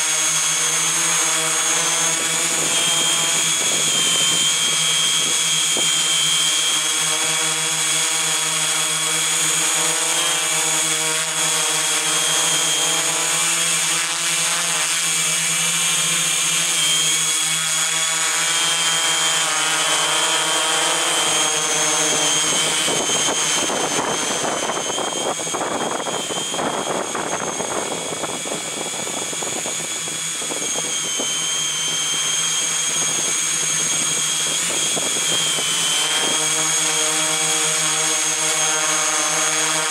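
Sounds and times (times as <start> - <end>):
drone motors whining: 0.0 - 39.9
gusty wind: 19.8 - 38.5.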